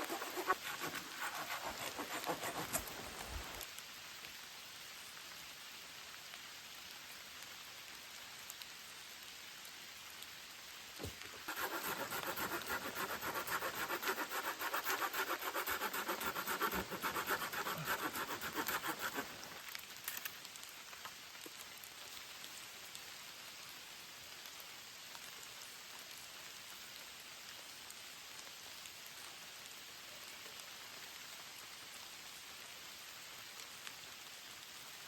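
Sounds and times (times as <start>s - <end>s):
hand saw cutting wood: 0.0s - 3.6s, 11.0s - 19.6s
steady rain: 0.0s - 11.6s, 16.5s - 35.0s.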